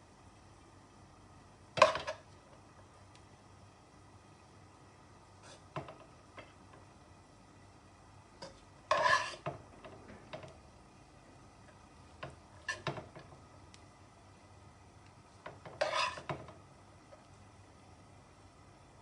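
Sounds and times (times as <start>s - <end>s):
metal utensil scraping a pot: 8.9s - 9.5s, 12.6s - 13.0s, 15.7s - 16.3s.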